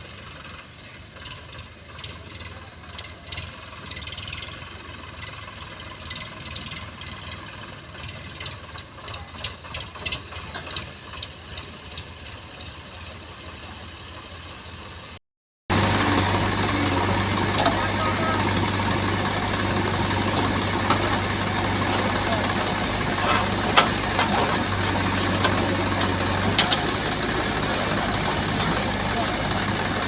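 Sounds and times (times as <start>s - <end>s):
heavy diesel engine running: 0.0s - 30.0s
metal rattling and knocks: 16.5s - 30.0s.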